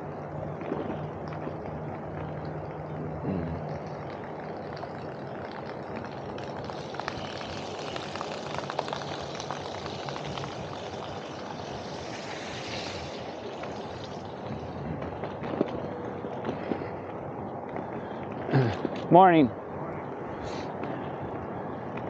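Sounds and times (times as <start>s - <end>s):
road noise: 0.0s - 22.0s
hiss: 6.8s - 14.9s
wind rush: 9.9s - 22.0s.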